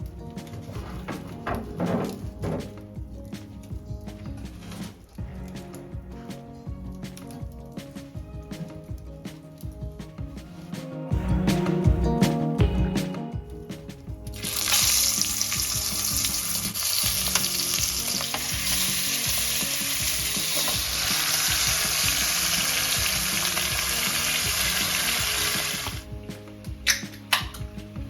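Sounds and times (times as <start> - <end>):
food sizzling in a hot pan: 14.4 - 26.0.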